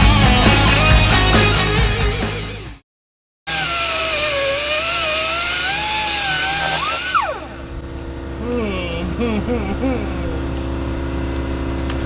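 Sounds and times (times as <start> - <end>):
angle grinder cutting metal: 3.5 - 7.8.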